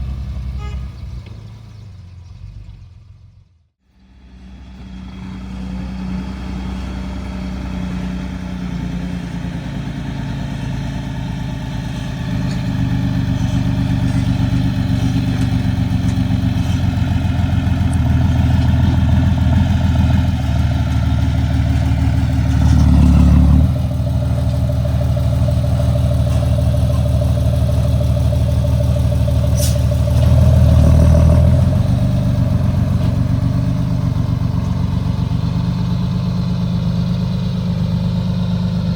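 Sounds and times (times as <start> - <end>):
excavator engine running: 4.3 - 38.9
short high squeak: 29.5 - 29.9.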